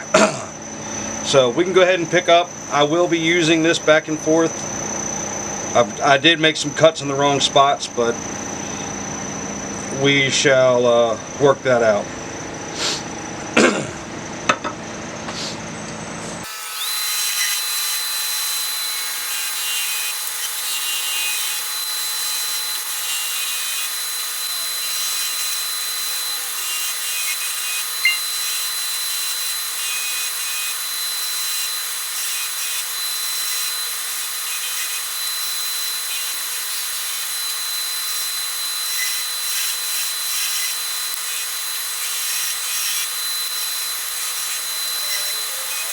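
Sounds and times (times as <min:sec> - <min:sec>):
chisel cutting spinning wood: 0:16.4 - 0:45.9.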